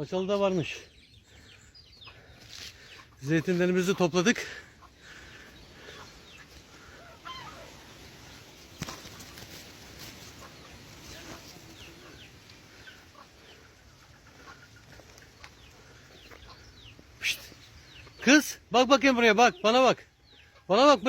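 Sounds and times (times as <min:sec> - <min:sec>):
chickens clucking: 0:00.0 - 0:21.0
chicken short calls: 0:05.8 - 0:08.1, 0:16.5 - 0:17.7.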